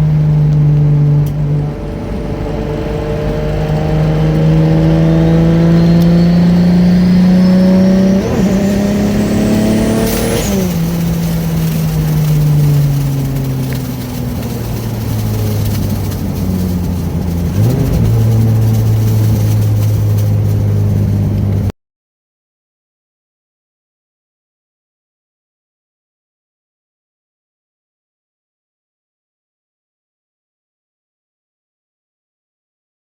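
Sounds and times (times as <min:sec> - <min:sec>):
car engine accelerating: 0:00.0 - 0:21.7.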